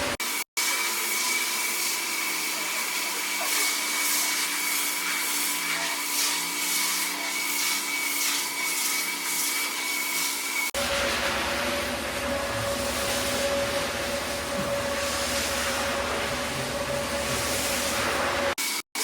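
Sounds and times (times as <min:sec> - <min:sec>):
carpet cleaning machine whining: 0:00.0 - 0:18.8
swishing strokes over carpet: 0:12.6 - 0:18.6.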